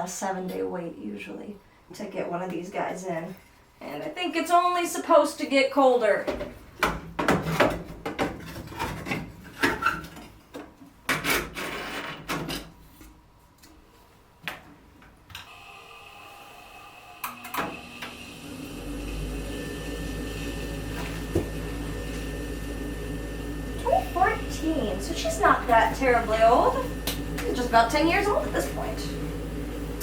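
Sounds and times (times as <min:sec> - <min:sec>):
motor whine: 0:15.4 - 0:30.0
furnace low rumble: 0:18.8 - 0:30.0.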